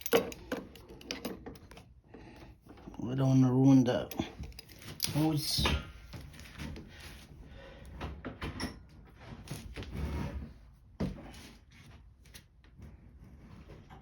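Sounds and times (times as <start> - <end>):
hand tools clicking and scraping: 0.0 - 2.8.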